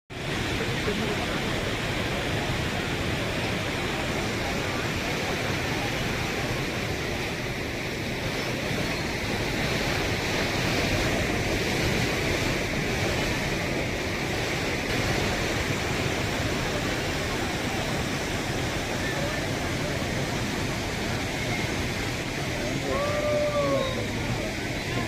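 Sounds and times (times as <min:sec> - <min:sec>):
heavy rain falling: 0:00.1 - 0:25.0.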